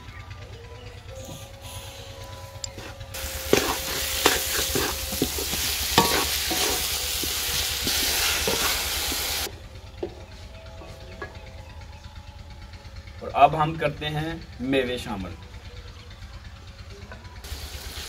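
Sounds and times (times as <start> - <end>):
wooden spoon scraping a pan: 2.8 - 9.5
carrots sizzling in a pan: 3.2 - 9.5, 17.5 - 18.0.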